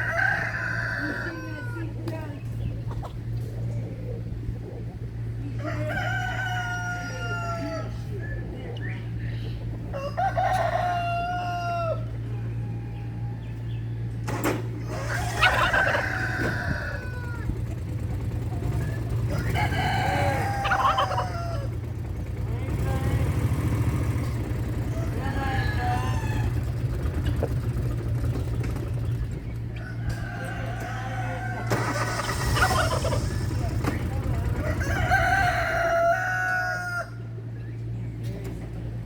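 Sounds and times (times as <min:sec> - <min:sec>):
rooster crowing: 0:00.0 - 0:02.0, 0:05.5 - 0:08.1, 0:09.9 - 0:13.6, 0:14.8 - 0:17.9, 0:19.0 - 0:22.0, 0:24.0 - 0:26.9, 0:29.8 - 0:33.7, 0:34.3 - 0:37.4
steady low hum: 0:00.0 - 0:39.0.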